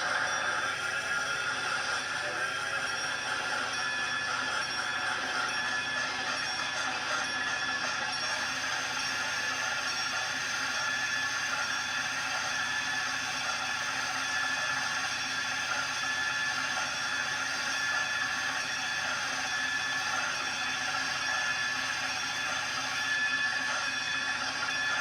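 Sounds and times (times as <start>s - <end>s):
constant high tones: 0.0s - 12.4s.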